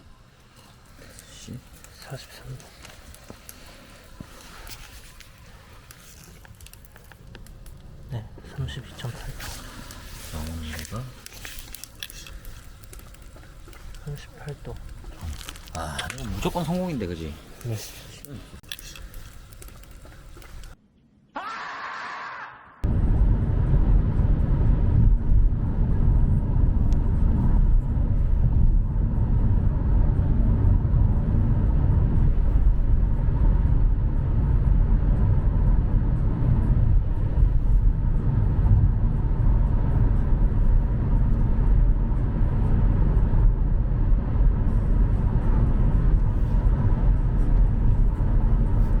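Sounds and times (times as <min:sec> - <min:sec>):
loud low rumble: 0:22.8 - 0:49.0.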